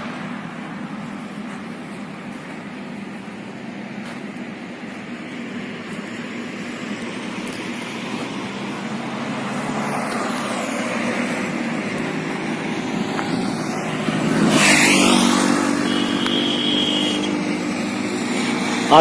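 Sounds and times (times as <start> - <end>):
road traffic engine hum: 0.0 - 19.0
vehicle passing close by: 6.4 - 19.0.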